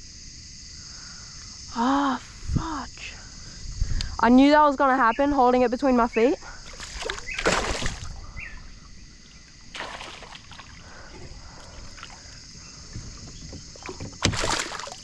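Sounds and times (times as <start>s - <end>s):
water swishing around kayak: 6.6s - 15.0s.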